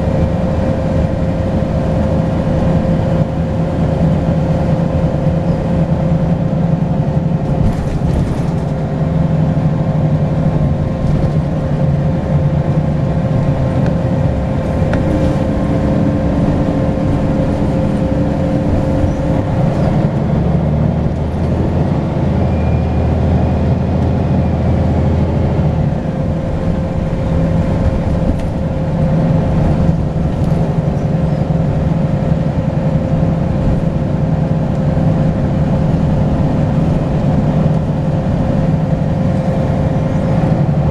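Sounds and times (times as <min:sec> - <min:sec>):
diesel bus engine running: 0:00.0 - 0:40.9
turbocharger whistle: 0:22.4 - 0:23.2.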